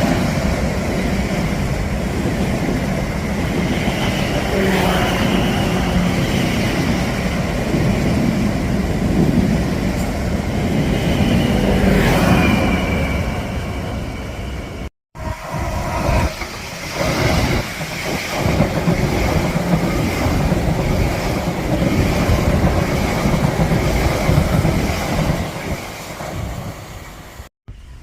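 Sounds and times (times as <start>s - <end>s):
train passing: 0.0s - 28.0s
train wheels knocking: 16.3s - 26.6s.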